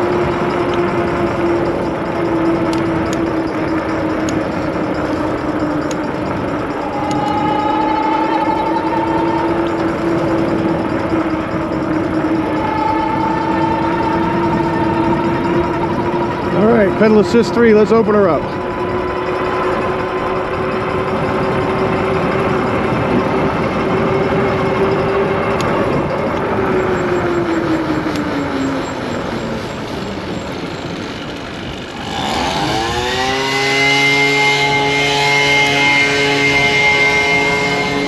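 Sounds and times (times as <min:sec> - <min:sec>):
wind rushing over microphone: 0:00.0 - 0:35.0
electric motor whining: 0:00.0 - 0:38.0
horn blast: 0:06.5 - 0:18.6, 0:32.0 - 0:38.0.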